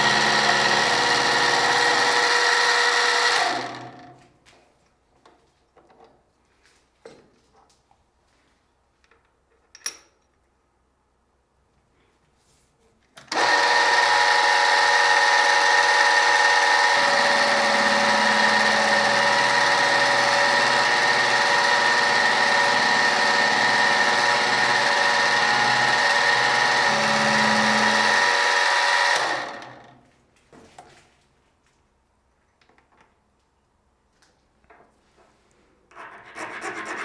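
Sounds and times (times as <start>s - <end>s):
machine tool motor whining: 0.0s - 4.0s, 13.3s - 30.0s.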